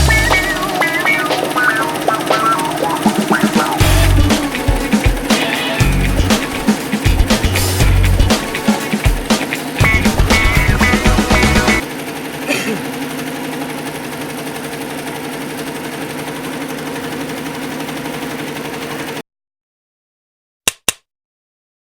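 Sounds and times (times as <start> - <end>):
sewing machine humming: 0.0 - 19.2
sharp clicks: 20.7 - 21.0.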